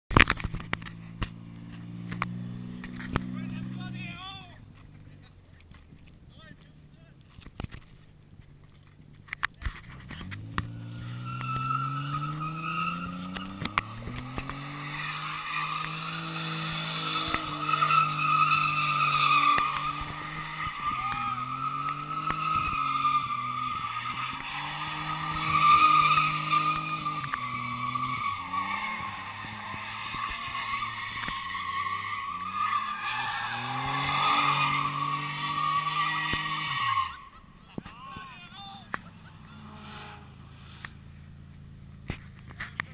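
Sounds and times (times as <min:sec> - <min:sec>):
car engine revving hard: 0:10.0 - 0:37.2, 0:38.9 - 0:41.0
tyres squealing: 0:10.2 - 0:40.3.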